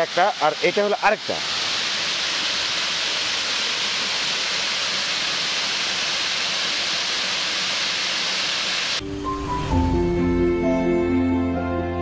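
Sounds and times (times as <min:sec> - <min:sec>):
waterfall rushing: 0:00.0 - 0:09.7
soft background music: 0:09.0 - 0:12.0.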